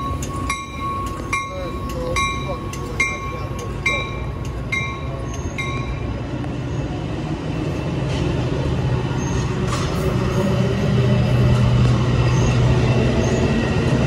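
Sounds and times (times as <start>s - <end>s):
bell dinging: 0.0s - 6.0s
train cars rumbling on rails: 0.0s - 14.0s.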